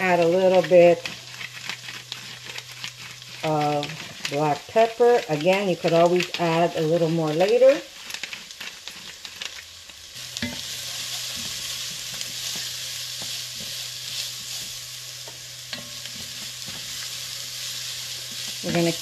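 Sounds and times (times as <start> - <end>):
food sizzling in oil: 0.0 - 19.0.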